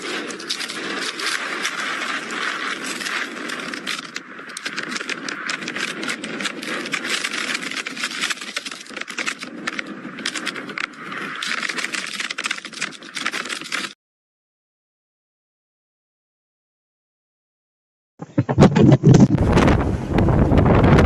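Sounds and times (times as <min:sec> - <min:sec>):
loose things rattling and flapping: 0:00.0 - 0:14.0
strong wind blowing: 0:18.3 - 0:21.0.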